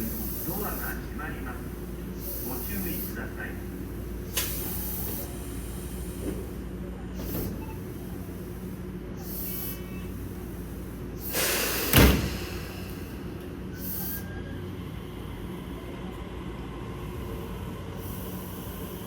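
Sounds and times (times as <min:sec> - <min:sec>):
train humming: 0:00.0 - 0:19.0
train doors clunk: 0:04.0 - 0:08.8, 0:10.8 - 0:14.0
air hisses: 0:07.3 - 0:14.2.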